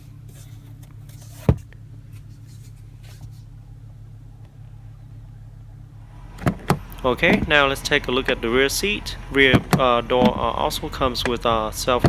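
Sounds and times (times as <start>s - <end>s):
low hum in car cabin: 0.0s - 12.0s
sun visor snapping shut: 6.4s - 7.5s.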